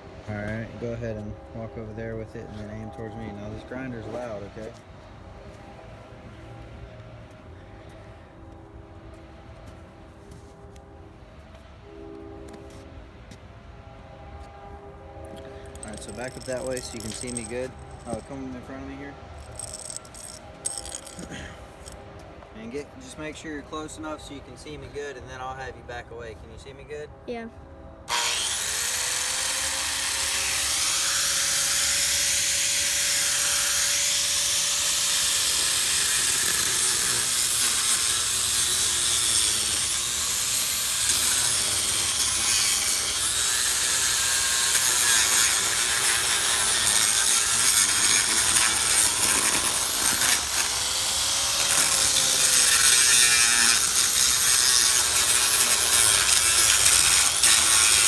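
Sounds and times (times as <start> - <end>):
angle grinder cutting concrete: 15.3 - 22.0, 28.1 - 58.0.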